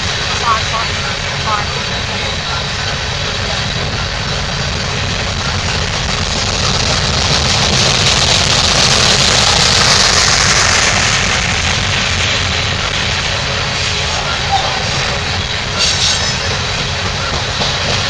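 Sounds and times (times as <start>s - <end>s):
freight cars rumbling on rails: 0.0s - 18.0s.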